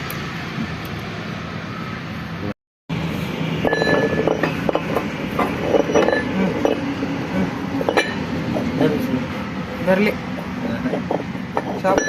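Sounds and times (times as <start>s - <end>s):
metallic clinks and knocks of tools: 3.6s - 6.8s.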